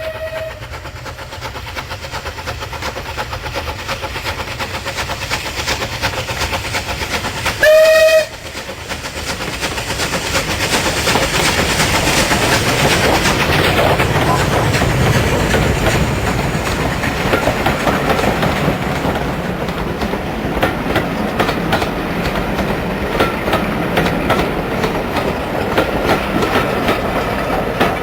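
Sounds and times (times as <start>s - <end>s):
train whistle blast: 0.0s - 0.7s, 7.6s - 8.4s
train clattering: 0.0s - 28.0s.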